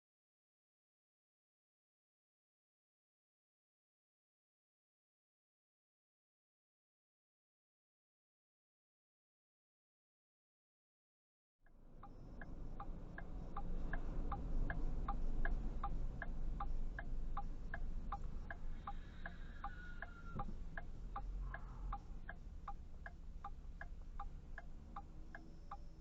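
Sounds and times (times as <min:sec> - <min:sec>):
car interior rumble: 0:11.7 - 0:26.0
turn signal clicking: 0:12.0 - 0:26.0.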